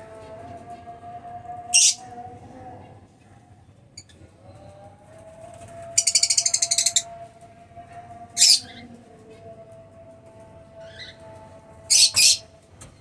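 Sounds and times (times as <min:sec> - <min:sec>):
bird squawk: 0:01.8 - 0:02.0, 0:11.9 - 0:12.4
birds chattering shrilly: 0:01.8 - 0:02.0, 0:11.9 - 0:12.5.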